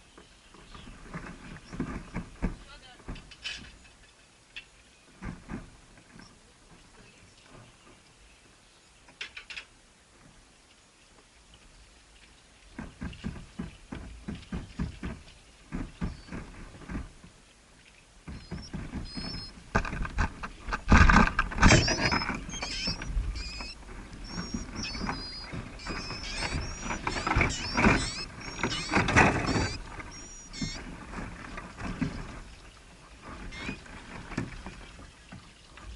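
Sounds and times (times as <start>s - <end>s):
birds rustling and scratching: 0.1s - 35.9s
high-pitched squeaky chirps: 18.4s - 19.5s, 21.6s - 30.8s.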